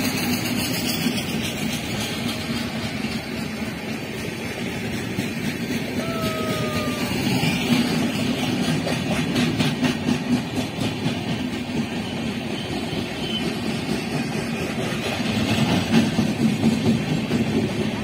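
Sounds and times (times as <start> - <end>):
train wheels rumbling on rails: 0.0 - 18.0
wheels clicking over rail joints: 0.0 - 18.0.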